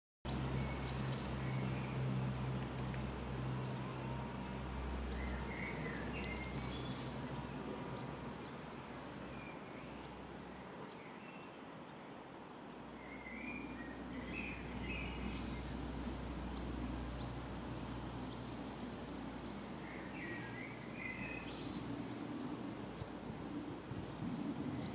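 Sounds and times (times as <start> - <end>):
bird chirps and calls: 5.0 - 8.6, 18.0 - 23.1
steady low rumble: 14.0 - 24.9.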